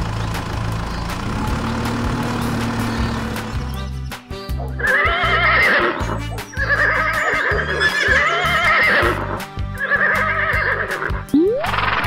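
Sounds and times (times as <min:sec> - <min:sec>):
horse whinnying: 0:04.8 - 0:12.0.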